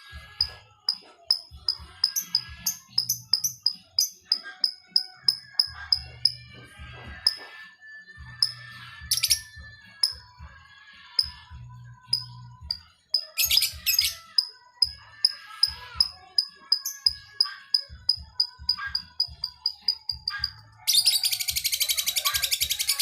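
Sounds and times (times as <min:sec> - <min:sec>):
shrill bird chirps: 0:00.0 - 0:23.0
lovebird ticking calls: 0:00.4 - 0:06.5, 0:12.1 - 0:23.0.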